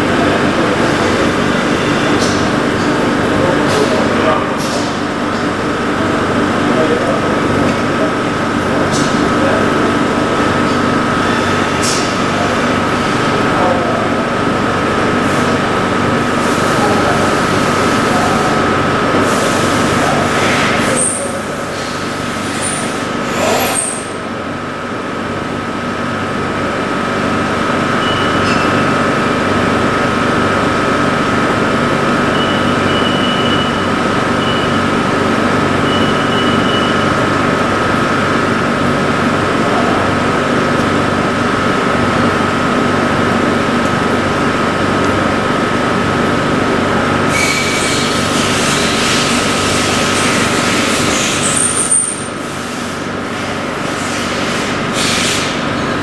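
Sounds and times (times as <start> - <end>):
short high squeaks: 47.3 - 49.0.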